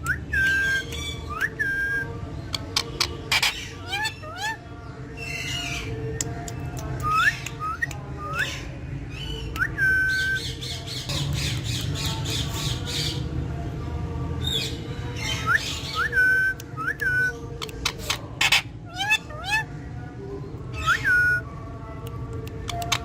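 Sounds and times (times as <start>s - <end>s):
parrot squawking: 2.7s - 4.6s, 17.8s - 19.7s.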